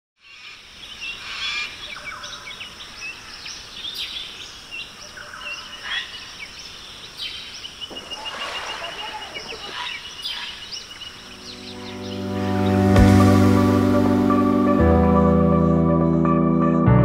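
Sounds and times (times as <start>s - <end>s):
small birds chirping: 0.2s - 13.1s.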